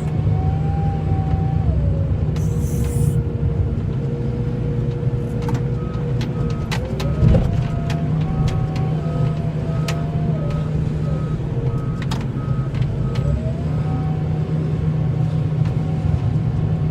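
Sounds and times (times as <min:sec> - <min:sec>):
snowplow engine whining: 0:00.0 - 0:16.9
backup alarm beeping: 0:02.4 - 0:03.2.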